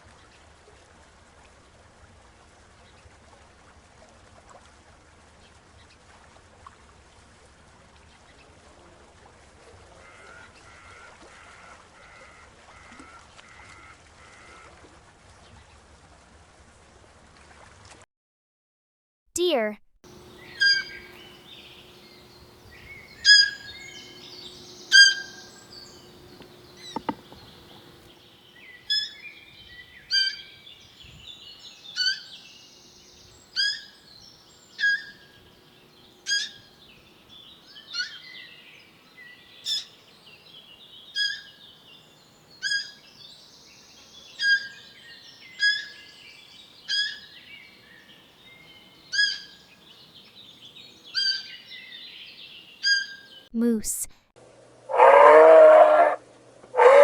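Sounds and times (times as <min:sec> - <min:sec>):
faint bird chirping: 0:20.1 - 0:53.8.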